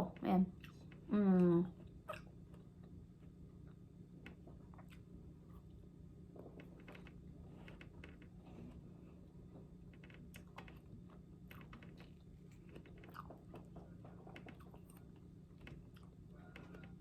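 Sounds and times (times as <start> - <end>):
low steady hum: 0.0 - 17.0
chewing apple crunches: 10.2 - 17.0.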